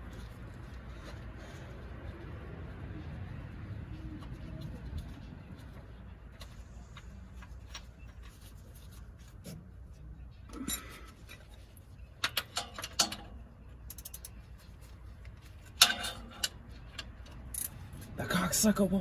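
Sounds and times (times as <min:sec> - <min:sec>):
hand tools clinking on metal: 0:15.6 - 0:17.8.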